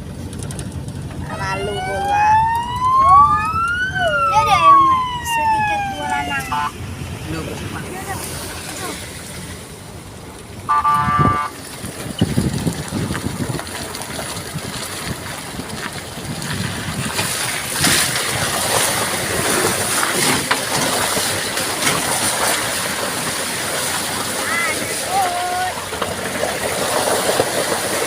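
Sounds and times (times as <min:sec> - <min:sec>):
traffic on wet road: 0:00.0 - 0:28.0
tyres splashing: 0:00.8 - 0:28.0
vehicle horn: 0:06.4 - 0:06.8, 0:10.7 - 0:11.6.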